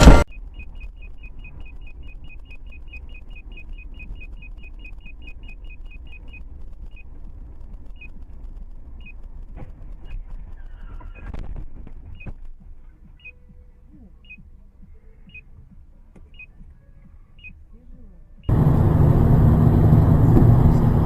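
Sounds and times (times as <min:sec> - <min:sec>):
short high electronic beeps: 0:00.0 - 0:07.1
car road and engine rumble: 0:00.0 - 0:21.0.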